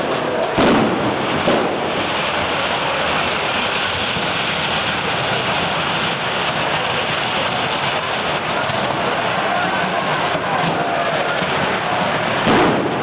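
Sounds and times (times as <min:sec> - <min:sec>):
bonfire burning: 0:00.0 - 0:13.0
thud: 0:12.5 - 0:13.0.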